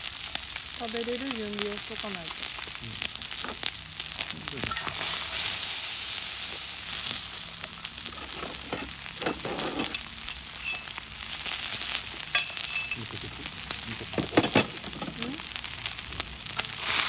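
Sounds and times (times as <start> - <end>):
food sizzling on a steel griddle: 0.0 - 17.0
small pops and crackles: 14.8 - 17.0.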